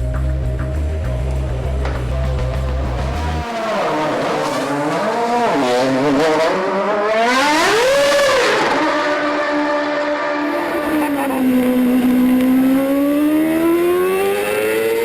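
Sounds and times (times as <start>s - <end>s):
music with heavy low beat: 0.0s - 3.5s
racing car engine at high revs: 0.0s - 15.0s.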